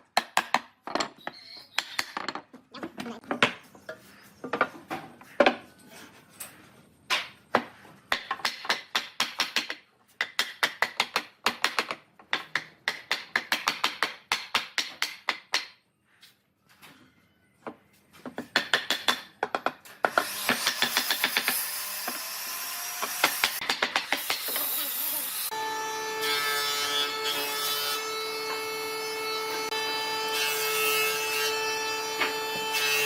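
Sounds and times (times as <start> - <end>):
hand tool striking wood: 18.3 - 22.2, 23.0 - 24.8.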